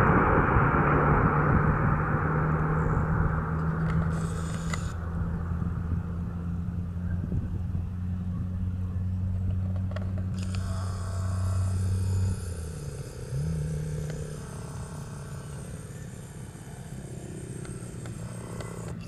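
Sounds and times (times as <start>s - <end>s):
aircraft engine drone: 0.0s - 19.0s
high engine whine: 0.0s - 19.0s.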